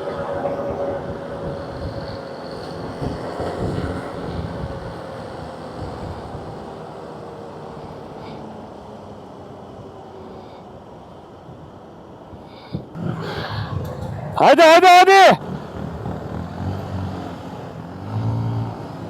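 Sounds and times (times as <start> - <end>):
rushing wind: 0.0 - 6.7, 12.4 - 16.8.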